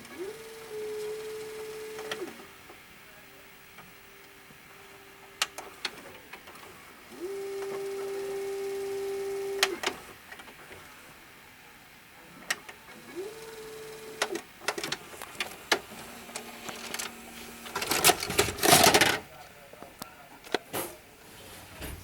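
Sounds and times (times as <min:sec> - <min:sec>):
motor humming: 0:03.4 - 0:11.0
mechanical clicks and clunks: 0:12.4 - 0:21.0.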